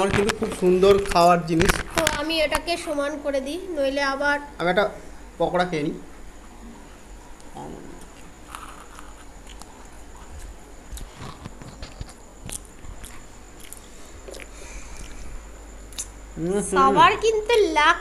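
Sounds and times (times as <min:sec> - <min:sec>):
crunchy chewing: 0:07.4 - 0:16.2
mouth clicks: 0:15.9 - 0:16.2.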